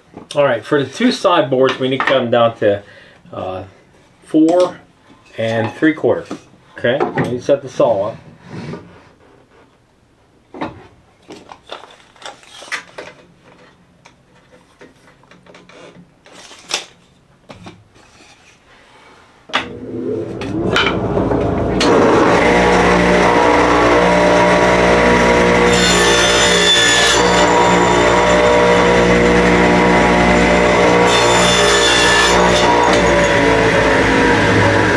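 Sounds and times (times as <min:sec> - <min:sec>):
table saw motor running: 0:19.6 - 0:34.9.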